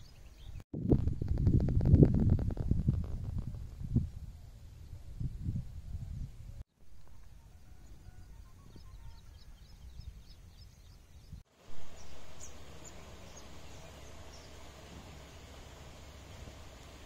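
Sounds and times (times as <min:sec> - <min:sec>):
small birds chirping: 0:00.0 - 0:00.6, 0:08.3 - 0:15.6
wind rumble on microphone: 0:00.1 - 0:06.6
hiss: 0:11.5 - 0:17.0.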